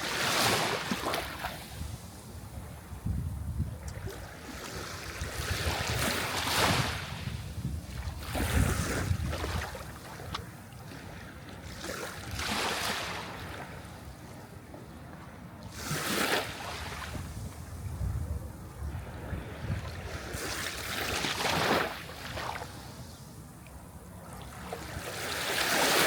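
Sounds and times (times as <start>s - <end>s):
low rumble of the sea: 0.0s - 26.0s.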